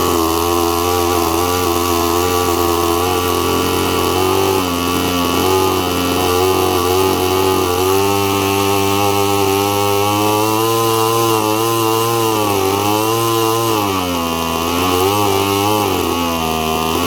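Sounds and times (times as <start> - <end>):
model engine running: 0.0 - 17.0.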